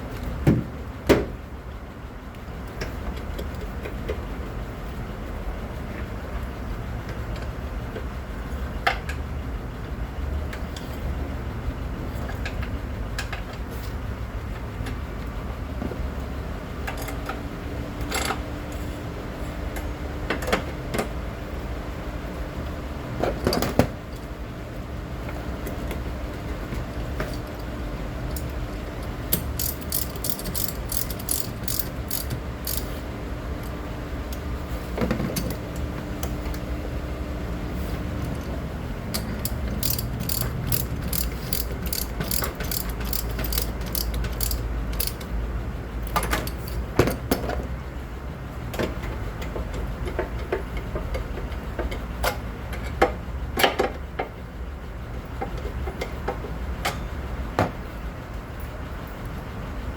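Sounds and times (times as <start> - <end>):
ratchet wrench clicking: 28.3 - 33.0, 39.1 - 45.3, 46.0 - 46.8.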